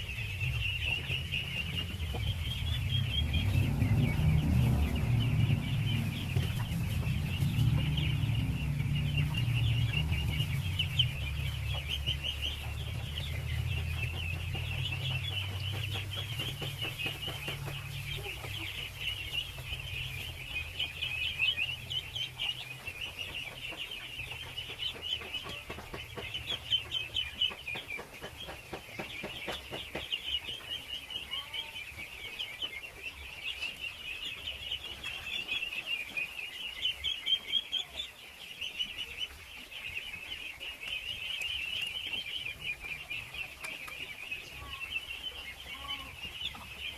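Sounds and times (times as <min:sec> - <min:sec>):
low rumble: 0:00.0 - 0:27.6
ducklings peeping: 0:00.0 - 0:46.9.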